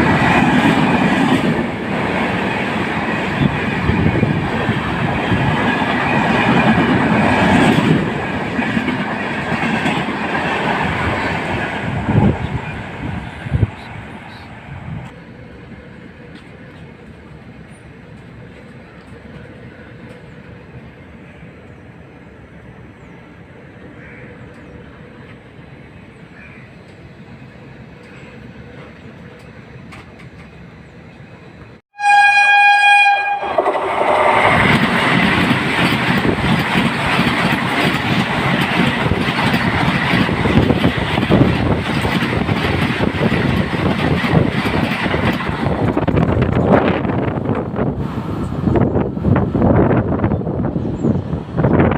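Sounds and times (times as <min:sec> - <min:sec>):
train passing close by: 0:00.0 - 0:51.9
train horn: 0:31.9 - 0:34.7.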